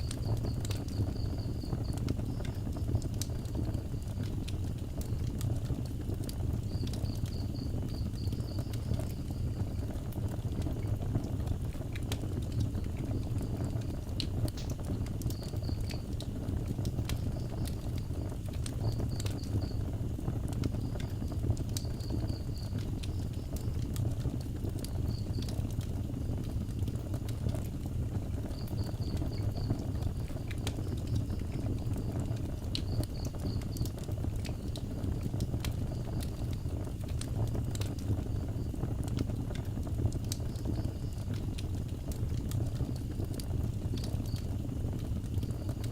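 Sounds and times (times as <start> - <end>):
insect chirping: 0.0 - 3.0, 6.6 - 10.0, 14.6 - 20.0, 20.7 - 23.8, 28.4 - 34.8, 40.4 - 41.4, 43.9 - 44.5
wood fire crackling: 0.0 - 45.9.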